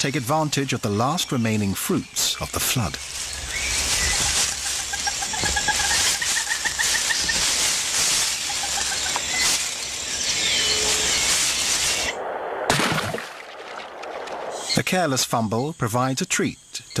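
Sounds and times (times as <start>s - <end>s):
steady high hiss: 0.0s - 12.7s
scattered chirps: 0.3s - 12.2s, 14.5s - 17.0s.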